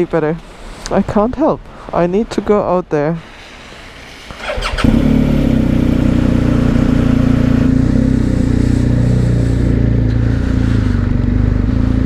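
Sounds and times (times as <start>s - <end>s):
motorcycle engine starting and idling: 3.9s - 12.0s.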